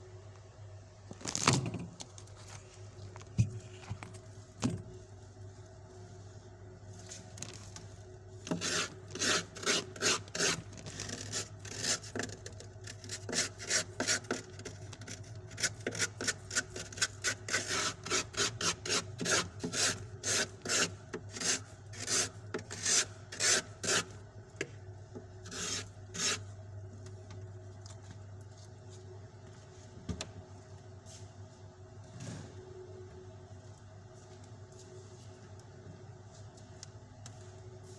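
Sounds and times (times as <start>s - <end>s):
steady low hum: 0.0s - 37.9s
knife scraping frost: 8.5s - 14.5s, 25.4s - 26.5s.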